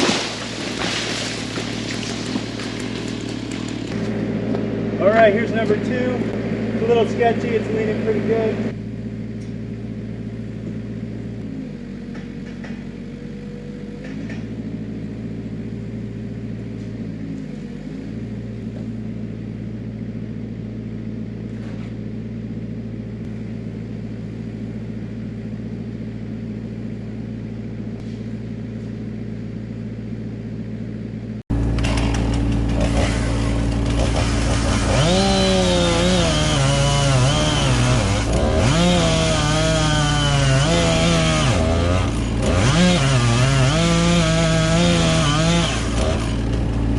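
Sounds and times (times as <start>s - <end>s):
chainsaw cutting tree trunk: 0.0s - 4.8s, 31.5s - 46.9s
engine running steadily: 0.0s - 46.9s.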